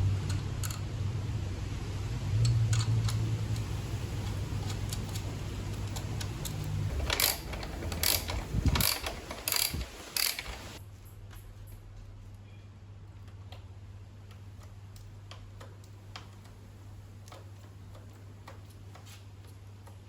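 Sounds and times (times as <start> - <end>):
sharp mechanical clicks: 2.5 - 10.8.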